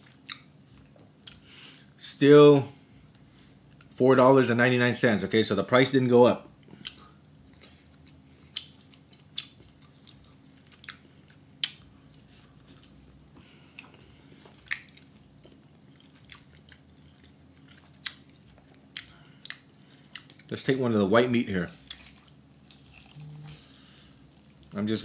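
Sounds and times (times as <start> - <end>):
person chewing: 0.0 - 1.9, 6.6 - 20.5, 21.7 - 24.8
faint low hum: 0.0 - 25.0.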